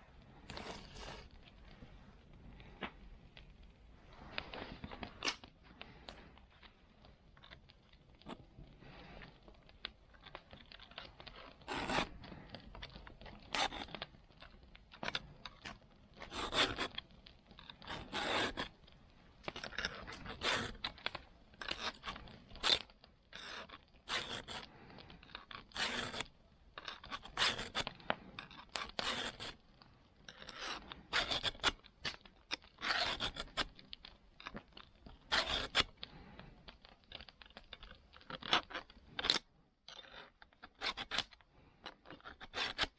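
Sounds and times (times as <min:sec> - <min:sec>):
metal file scraping saw teeth: 0:25.7 - 0:26.2.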